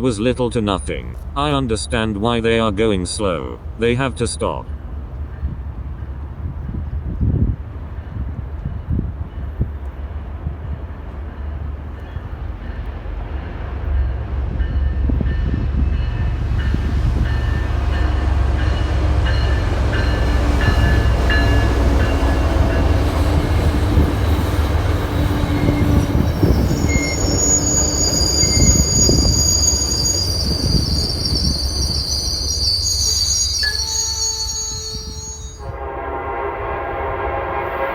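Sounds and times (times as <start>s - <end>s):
train rumbling past: 0.0s - 37.9s
train wheels squealing: 24.2s - 35.7s.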